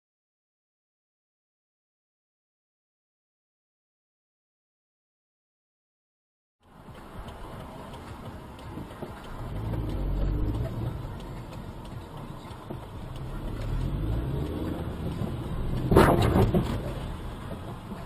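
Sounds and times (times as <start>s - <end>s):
road rumble inside vehicle: 6.6s - 18.0s
car engine revving: 7.0s - 18.0s.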